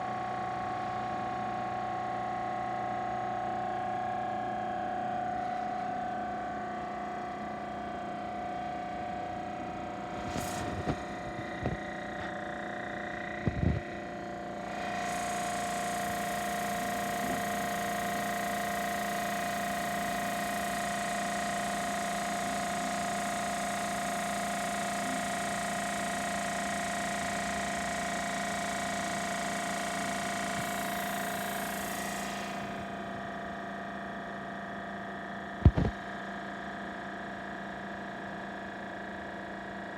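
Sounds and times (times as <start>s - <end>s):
air compressor humming: 5.3s - 36.7s
air hissing: 30.1s - 33.2s.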